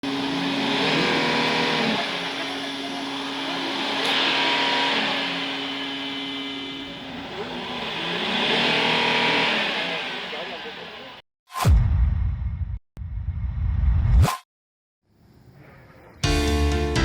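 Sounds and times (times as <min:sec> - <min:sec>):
diesel engine revving: 0:00.0 - 0:11.2.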